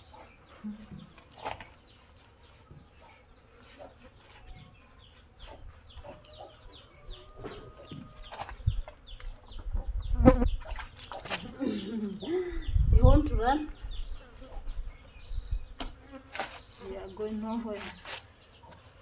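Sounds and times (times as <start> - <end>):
chickens clucking: 0.0 - 12.8
small birds chirping: 0.0 - 19.0.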